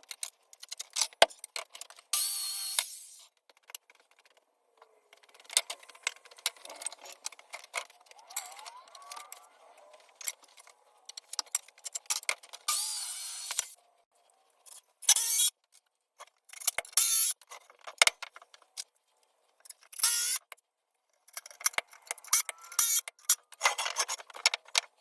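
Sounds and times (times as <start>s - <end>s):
small power tool bursts: 2.2s - 3.3s, 12.7s - 13.8s.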